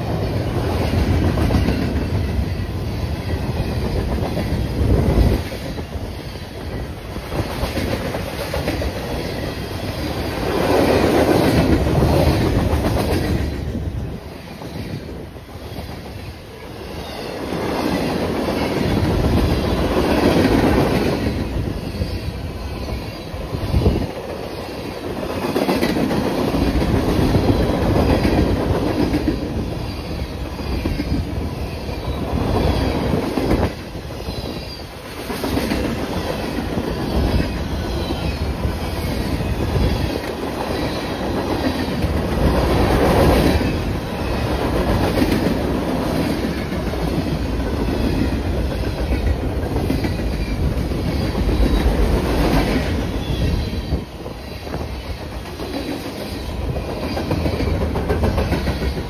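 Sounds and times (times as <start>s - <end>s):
train wheels clacking over rail joints: 54.7s - 59.0s.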